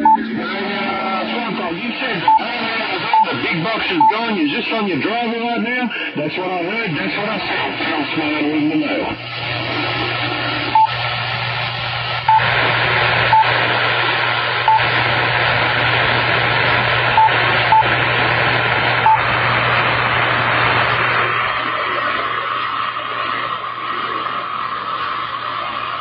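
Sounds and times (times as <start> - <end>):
short radio beeps: 0.0 - 0.3, 2.3 - 2.5, 3.1 - 3.4, 4.0 - 4.2, 12.3 - 12.5, 13.3 - 13.5, 14.7 - 14.9
radio static hiss: 0.0 - 26.0.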